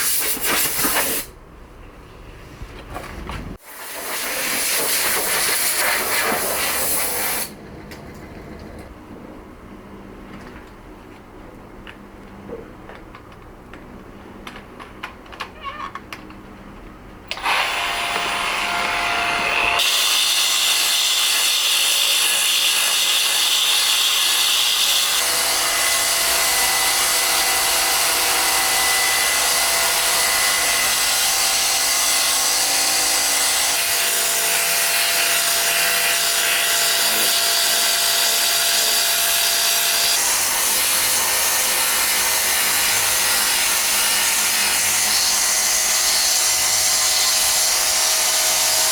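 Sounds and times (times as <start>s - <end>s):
power tool grinding stone: 17.4s - 48.9s.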